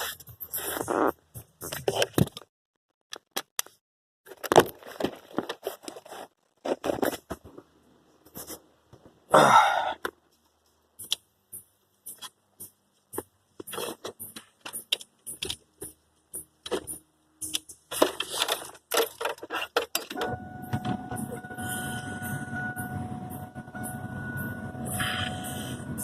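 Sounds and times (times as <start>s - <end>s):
tools clicking and scraping: 11.0s - 21.4s.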